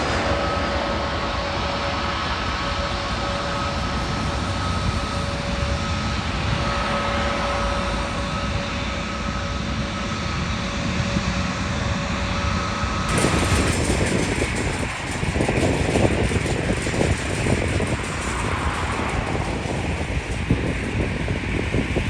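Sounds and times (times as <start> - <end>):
jet engines whining: 0.0 - 22.0
rough gusty noise: 13.1 - 22.0.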